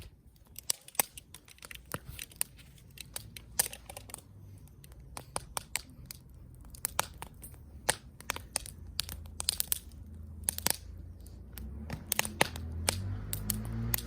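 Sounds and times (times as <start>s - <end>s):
low steady hum: 0.0s - 14.0s
wood fire crackling: 0.0s - 14.0s.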